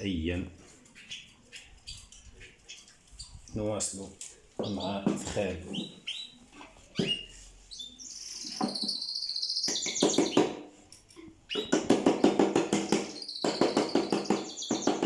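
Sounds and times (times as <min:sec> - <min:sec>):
songbird trilling: 0:05.7 - 0:10.5, 0:12.7 - 0:15.0
high gliding bird whistles: 0:07.0 - 0:10.5.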